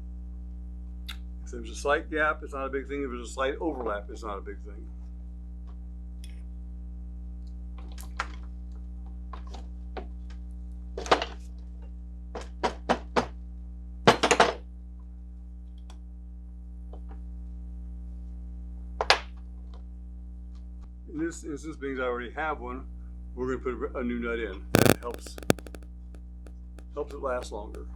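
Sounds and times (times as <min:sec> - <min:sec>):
low electrical hum: 0:24.8 - 0:25.8.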